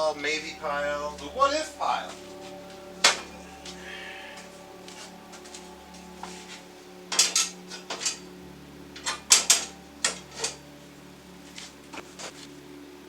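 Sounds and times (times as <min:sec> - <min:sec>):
faint steady hum: 0:00.0 - 0:13.0
metal tools clinking: 0:05.0 - 0:10.8.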